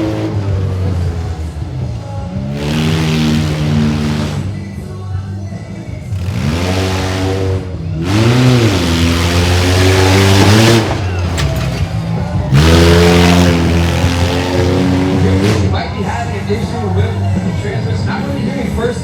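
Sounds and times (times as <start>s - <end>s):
mini monster truck engine revving: 0.0s - 1.6s, 2.4s - 4.6s, 6.1s - 15.8s.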